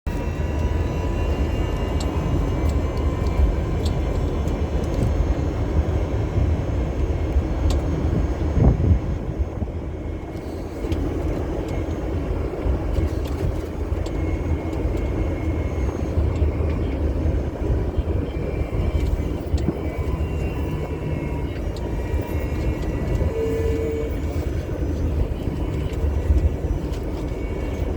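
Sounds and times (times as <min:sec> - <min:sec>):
vehicle interior rumble: 0:00.1 - 0:27.9.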